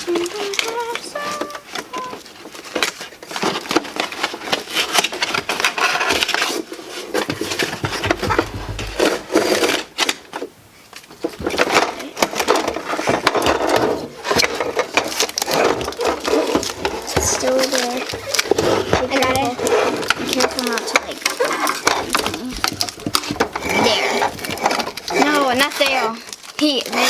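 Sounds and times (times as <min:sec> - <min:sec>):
cardboard scraping and rustling: 0:00.0 - 0:27.0.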